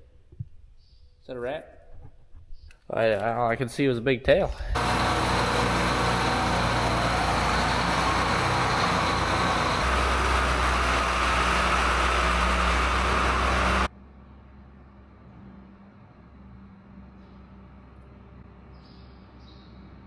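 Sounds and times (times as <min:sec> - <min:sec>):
engine running: 0:04.7 - 0:14.1.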